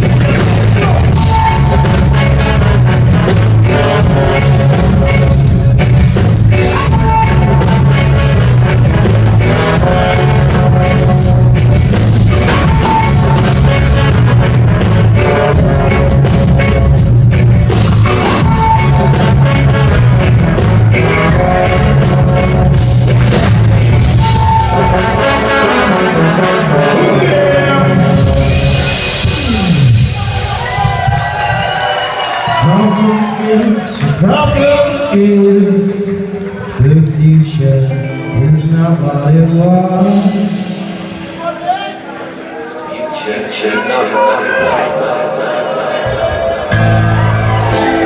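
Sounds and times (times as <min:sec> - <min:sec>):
heavy bass line: 0:00.0 - 0:31.6, 0:46.6 - 0:48.0
drums: 0:00.0 - 0:42.8, 0:46.0 - 0:48.0
live band playing amplified music: 0:00.0 - 0:48.0.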